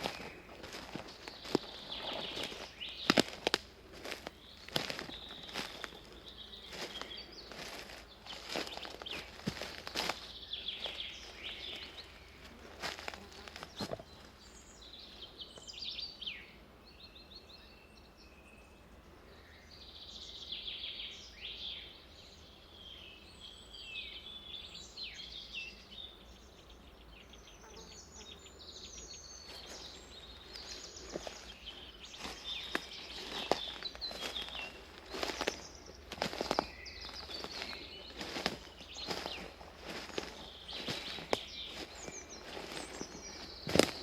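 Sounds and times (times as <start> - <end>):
footsteps on path: 0.0 - 14.4, 29.4 - 44.0
birds chirping and trilling: 0.0 - 44.0.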